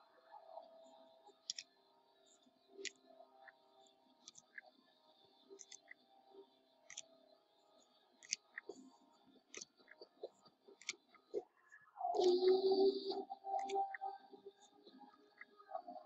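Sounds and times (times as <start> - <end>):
faint background music: 0.0 - 16.0.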